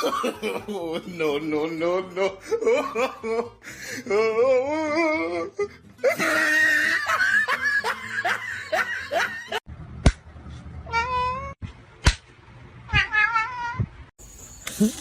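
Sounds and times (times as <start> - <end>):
people laughing hard: 0.0 - 3.8, 6.0 - 9.6.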